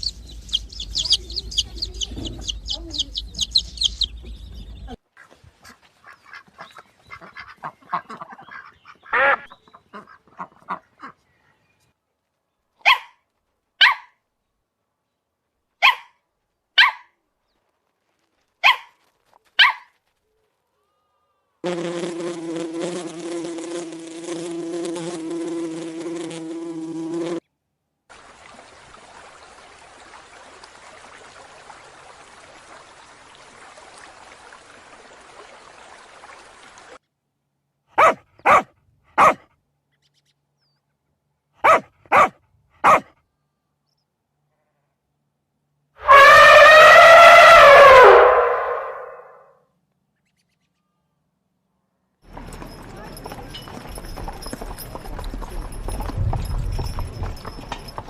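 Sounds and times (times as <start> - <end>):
clucking animal calls: 0.0 - 11.2
insect-like buzz: 21.6 - 27.4.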